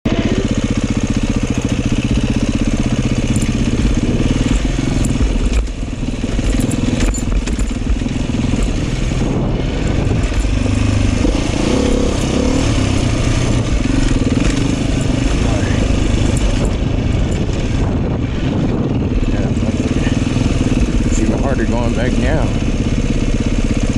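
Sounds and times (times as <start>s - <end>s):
dirt bike engine running: 0.1s - 23.9s
scattered clicks: 3.2s - 9.0s.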